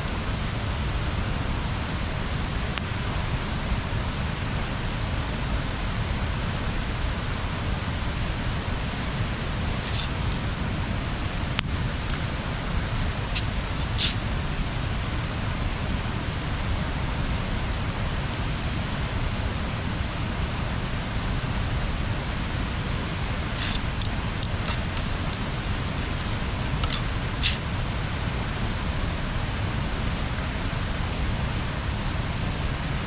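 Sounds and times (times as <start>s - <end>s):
fire crackles and pops: 20.1s - 28.0s.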